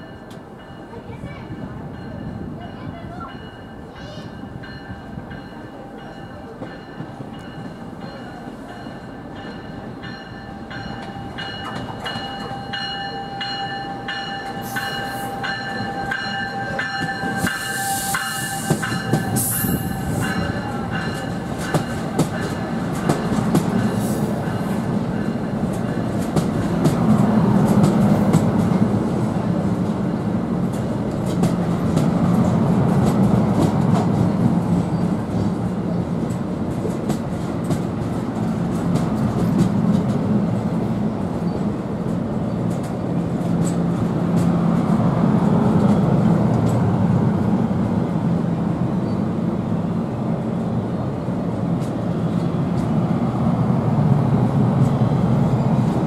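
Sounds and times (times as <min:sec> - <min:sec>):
train rumbling: 0:00.0 - 0:56.0
train wheels clicking over rail joints: 0:14.4 - 0:29.2, 0:36.1 - 0:40.3.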